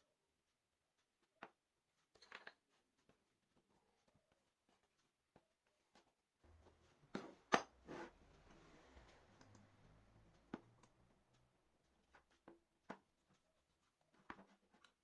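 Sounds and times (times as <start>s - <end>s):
faint low hum: 6.4s - 12.5s.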